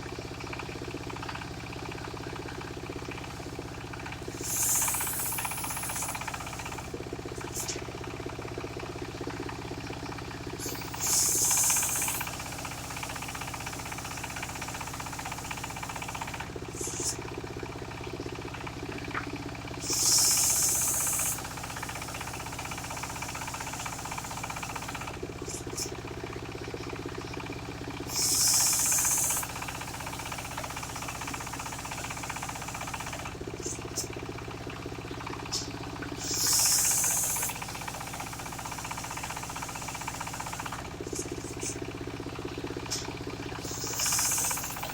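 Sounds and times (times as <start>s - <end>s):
engine-driven saw running: 0.0s - 44.9s
saw blade cutting wood: 4.3s - 7.9s, 10.6s - 17.3s, 19.8s - 25.9s, 28.1s - 34.1s, 35.5s - 41.8s, 43.6s - 44.9s.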